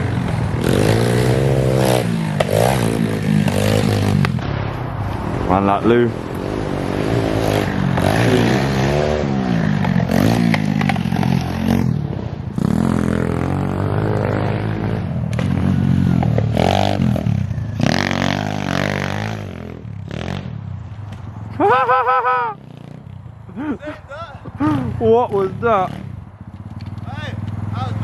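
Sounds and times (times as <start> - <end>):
dirt bike engine revving: 0.0 - 4.4, 5.6 - 20.7, 24.5 - 28.0
rushing noise: 0.0 - 21.0.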